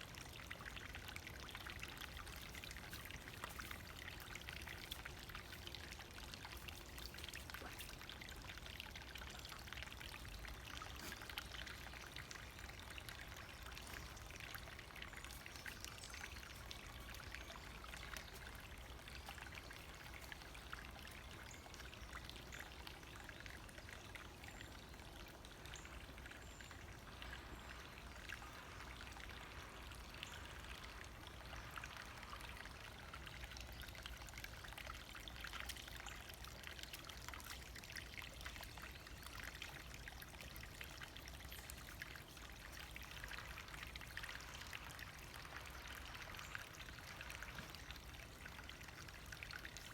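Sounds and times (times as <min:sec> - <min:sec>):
brook trickling over stones: 0:00.0 - 0:49.9.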